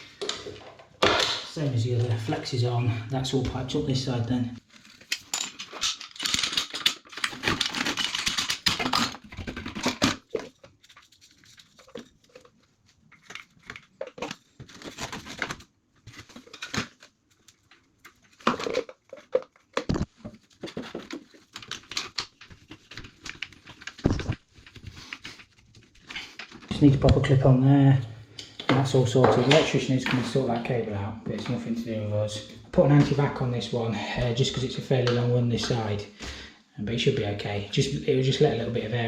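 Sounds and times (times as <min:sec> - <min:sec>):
rustling and crinkling: 0:04.6 - 0:27.4
pipe fittings clicking and knocking: 0:05.0 - 0:12.5, 0:17.6 - 0:27.2.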